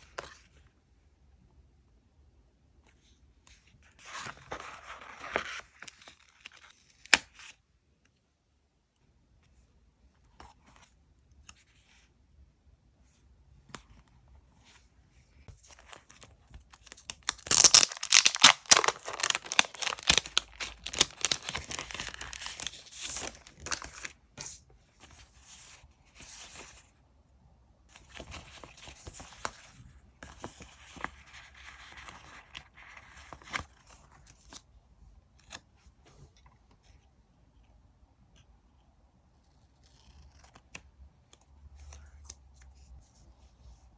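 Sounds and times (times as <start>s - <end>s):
paper tearing and crinkling: 17.3s - 23.4s.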